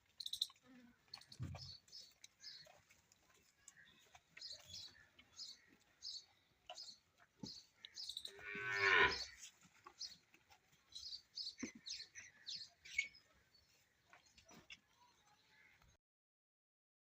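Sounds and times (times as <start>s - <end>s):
small birds chirping: 0.0s - 16.0s
calf mooing: 8.4s - 9.4s.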